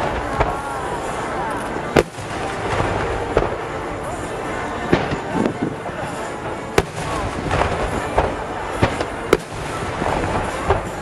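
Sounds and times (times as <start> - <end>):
fireworks bursting: 0.0 - 11.0
sharp firework bangs: 1.9 - 3.7, 6.7 - 11.0
light firework pops: 6.8 - 11.0.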